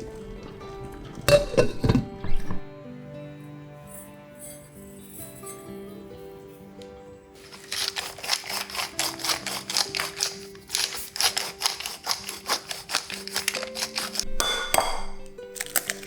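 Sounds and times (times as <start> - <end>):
soft background music: 0.0 - 16.0
knife chopping on cutting board: 7.8 - 16.0.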